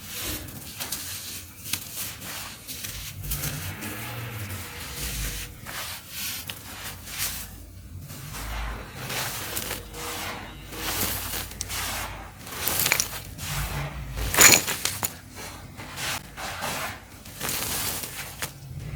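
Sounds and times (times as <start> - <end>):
dirt clumps crunching: 12.7 - 13.2.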